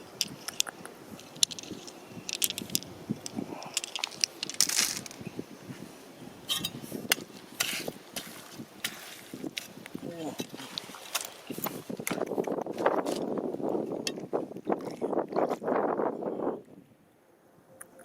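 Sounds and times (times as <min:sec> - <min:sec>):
stones and gravel clacking: 0:00.2 - 0:05.2, 0:10.4 - 0:13.3.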